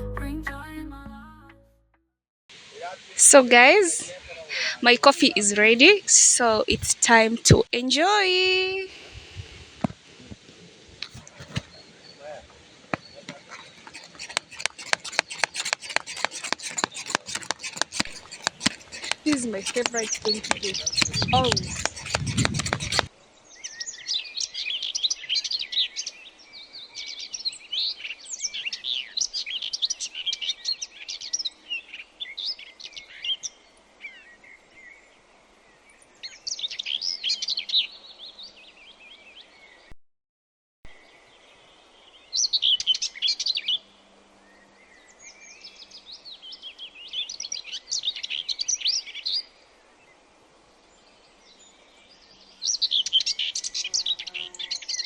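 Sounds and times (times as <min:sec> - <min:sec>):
birds chirping and singing: 0:13.5 - 0:23.1.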